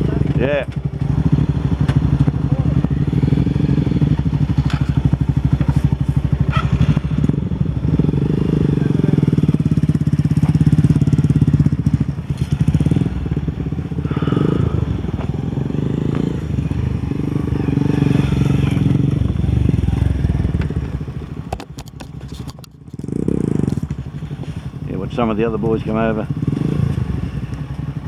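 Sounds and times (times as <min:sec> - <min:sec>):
motorbike engine running: 0:00.0 - 0:28.0
light clicks and rattles: 0:21.5 - 0:23.1.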